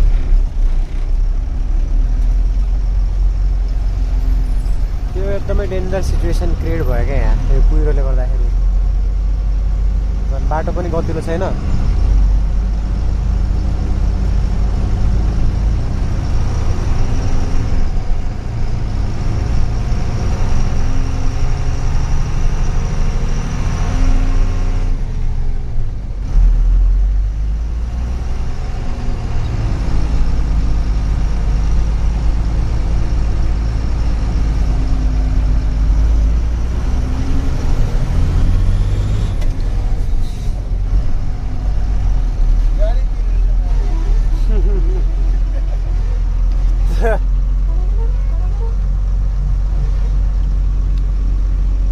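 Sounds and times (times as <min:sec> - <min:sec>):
truck engine rumbling: 0:00.0 - 0:51.9.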